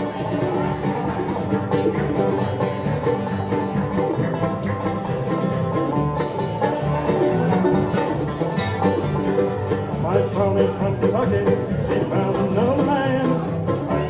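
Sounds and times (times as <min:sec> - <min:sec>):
banjo fast picking: 0:00.0 - 0:14.0
bluegrass band playing: 0:00.0 - 0:14.0.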